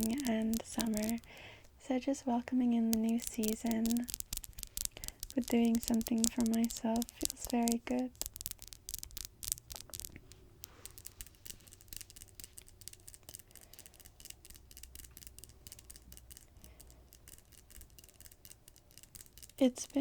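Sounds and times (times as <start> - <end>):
fingernails tapping and clicking: 0.0 - 1.7, 2.7 - 20.0.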